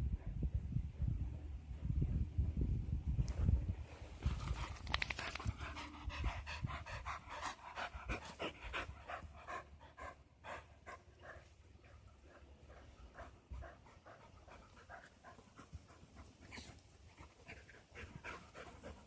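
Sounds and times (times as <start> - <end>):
dog panting rapidly: 4.3 - 19.0.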